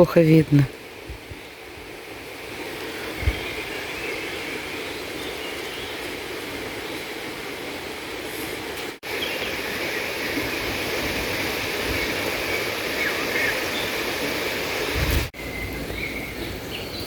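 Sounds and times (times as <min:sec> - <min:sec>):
rushing hiss: 0:07.8 - 0:15.4.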